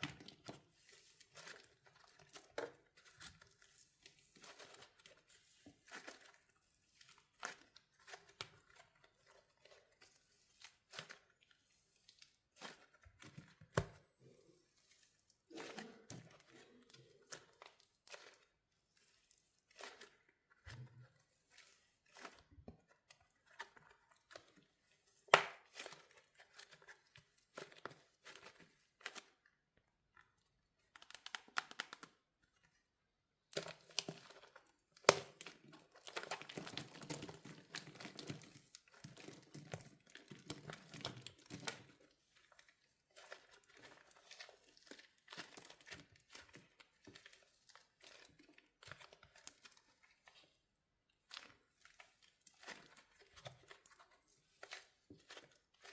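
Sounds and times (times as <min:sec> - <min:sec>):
wax shell cracking and crinkling: 0:23.1 - 0:32.6, 0:33.5 - 0:42.8.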